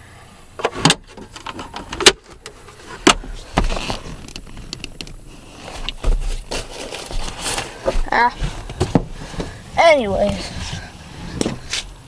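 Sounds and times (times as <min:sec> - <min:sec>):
handling clicks and knocks: 0:00.6 - 0:05.2.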